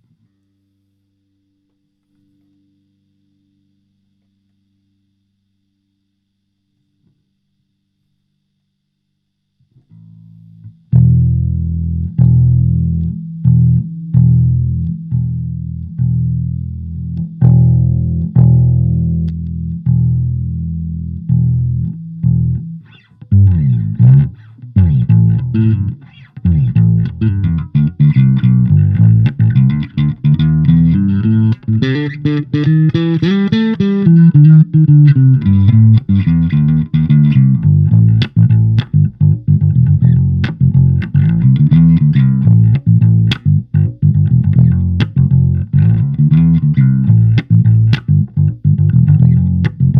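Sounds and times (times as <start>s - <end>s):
electric bass guitar notes: 9.9s - 49.9s.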